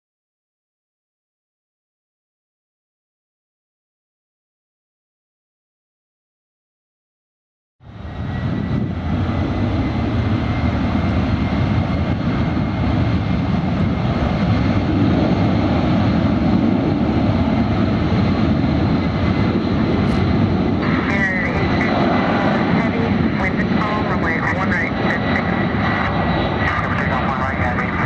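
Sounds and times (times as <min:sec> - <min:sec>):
jet engines roaring: 0:07.8 - 0:28.0
thin high engine whine: 0:07.8 - 0:28.0.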